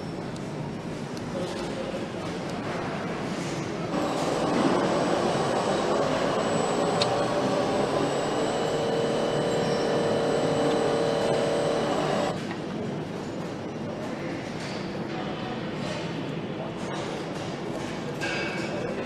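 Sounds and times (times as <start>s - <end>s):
high machine whine: 3.9s - 12.4s
factory machinery din: 3.9s - 12.5s
droning tone: 4.0s - 12.4s.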